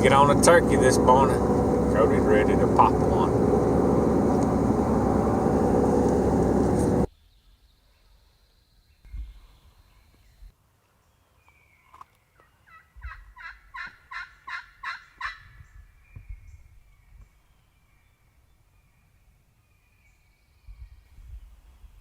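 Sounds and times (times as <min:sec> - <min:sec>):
low rumble: 0:00.0 - 0:07.1
low thumps: 0:00.0 - 0:07.1.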